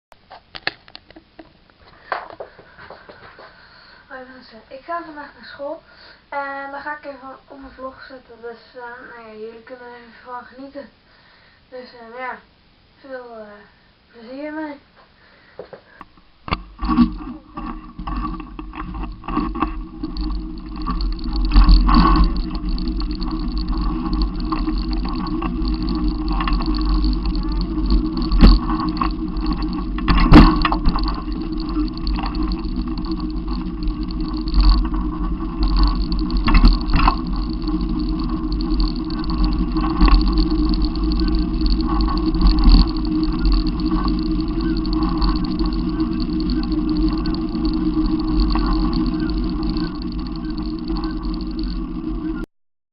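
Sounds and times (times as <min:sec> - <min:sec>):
sharp clicks: 0:16.5 - 0:52.5.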